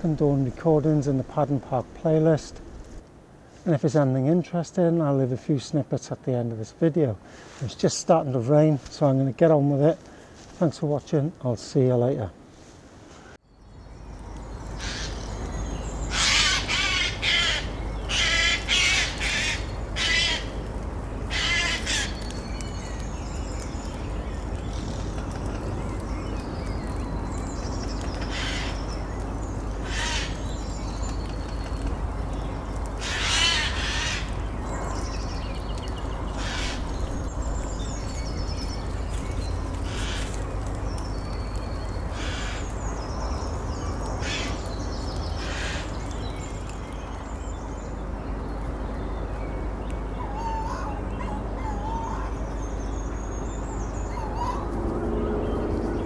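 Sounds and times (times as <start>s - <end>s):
small birds twittering: 13.2s - 56.0s
large bird cawing harshly: 14.8s - 20.6s, 21.2s - 22.3s, 28.2s - 29.0s, 29.8s - 30.7s, 33.0s - 34.5s, 36.3s - 37.1s, 39.8s - 40.4s, 42.1s - 43.0s, 44.2s - 46.0s, 50.2s - 52.5s.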